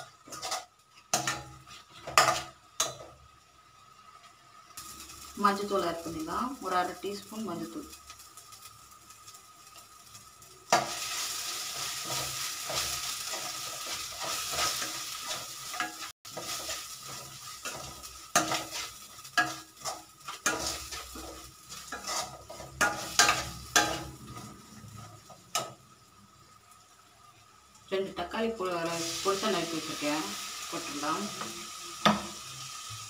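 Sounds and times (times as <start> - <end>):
onions sizzling in oil: 0.0 - 33.0
spoon scraping and clinking pan: 12.1 - 24.1.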